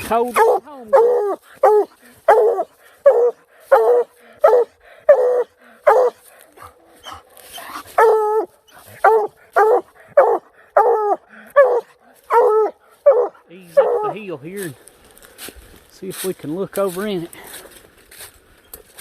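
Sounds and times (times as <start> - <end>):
dog barking: 0.4 - 14.2.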